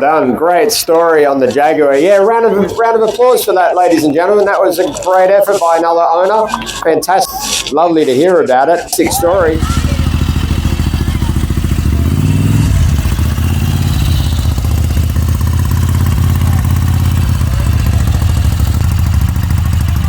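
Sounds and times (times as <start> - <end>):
car engine running: 9.0 - 20.0.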